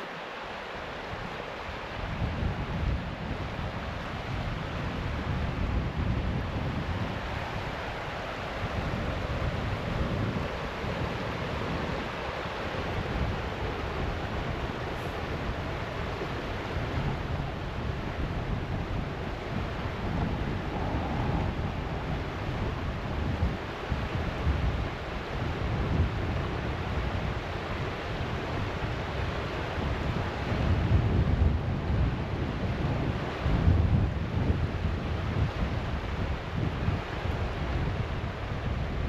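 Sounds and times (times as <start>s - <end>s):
steady rushing hiss: 0.0s - 31.0s
wind buffeting microphone: 0.0s - 39.0s.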